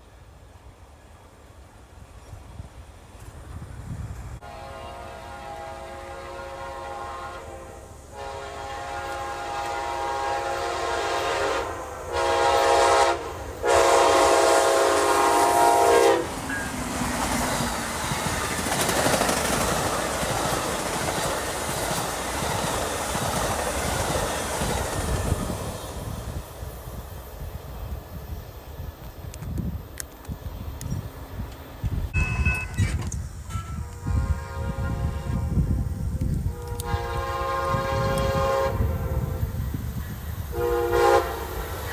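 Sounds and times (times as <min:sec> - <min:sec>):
locomotive air horn blasts: 0:04.4 - 0:16.4, 0:33.5 - 0:39.8, 0:40.5 - 0:41.9
train wheel clatter: 0:12.4 - 0:34.8.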